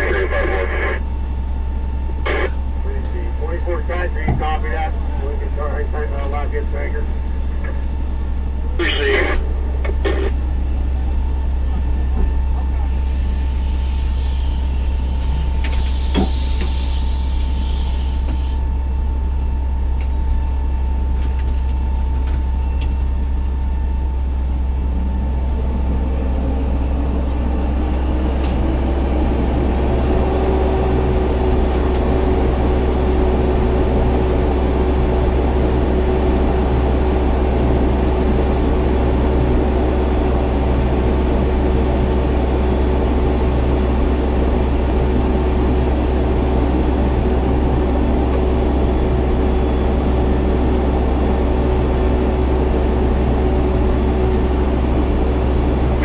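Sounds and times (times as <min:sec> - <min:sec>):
diesel engine running: 0:00.0 - 0:56.0
air hissing: 0:13.0 - 0:18.6.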